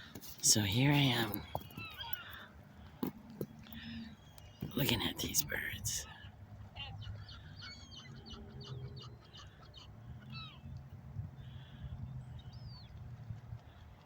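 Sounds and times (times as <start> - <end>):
waterbirds chirping and squeaking: 0.0 - 10.8.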